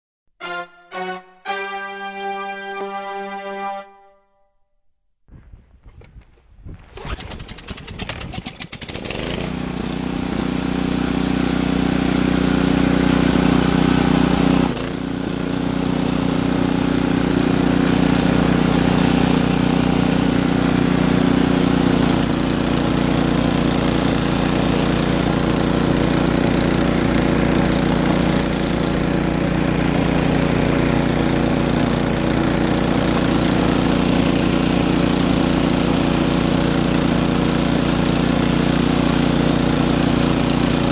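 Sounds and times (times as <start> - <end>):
small engine sputtering and running: 6.8 - 40.9.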